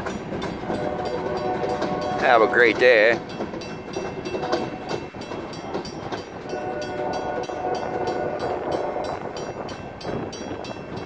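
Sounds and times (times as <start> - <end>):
crossing bell ringing: 0.0 - 11.0
train wheels rumbling on rails: 0.0 - 11.0.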